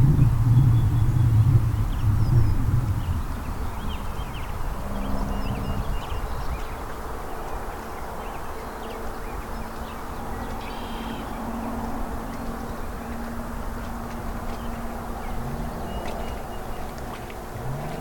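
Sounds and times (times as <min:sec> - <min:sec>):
low rumble: 0:00.0 - 0:06.9, 0:11.5 - 0:18.0.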